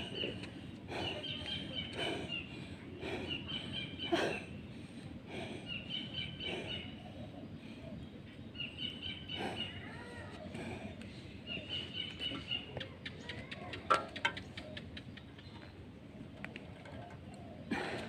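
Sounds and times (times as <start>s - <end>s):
outdoor background noise: 0.0s - 18.0s
bird chirping: 5.6s - 10.0s.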